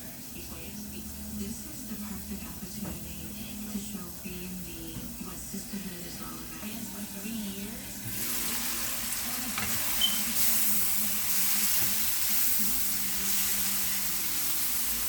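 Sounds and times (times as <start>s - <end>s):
meat sizzling in a pot: 0.0s - 15.0s.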